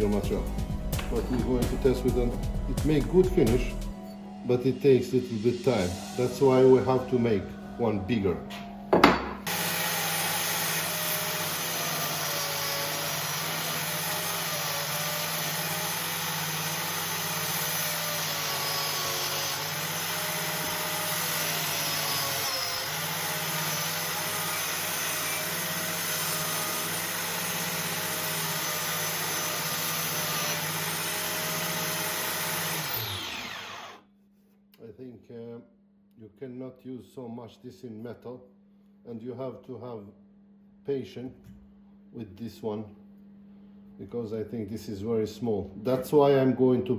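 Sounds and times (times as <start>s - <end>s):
angle grinder motor running: 9.4s - 34.0s.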